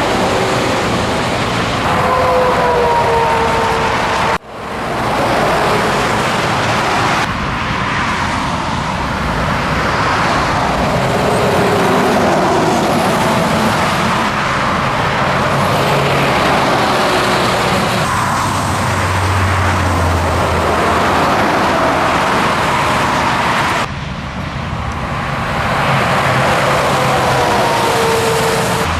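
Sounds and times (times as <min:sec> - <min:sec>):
road noise: 0:00.0 - 0:28.9
truck engine: 0:00.0 - 0:28.9.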